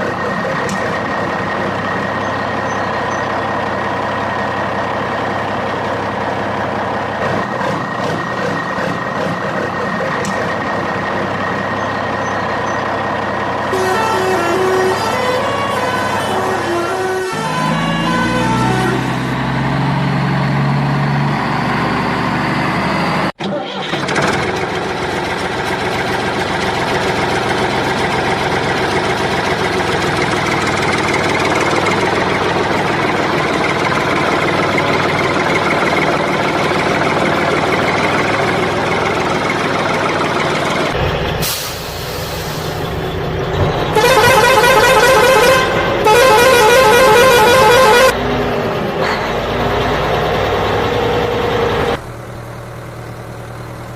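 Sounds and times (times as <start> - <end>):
toy horn blasts: 13.7 - 19.0, 43.9 - 48.2.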